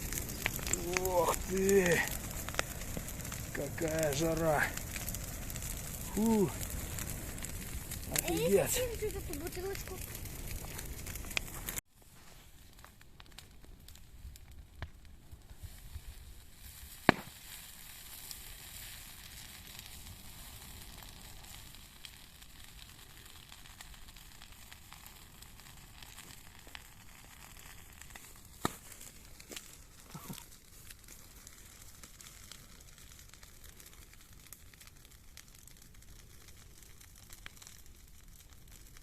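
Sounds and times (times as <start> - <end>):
bonfire crackling and hissing: 0.0 - 39.0
fire popping: 0.0 - 39.0.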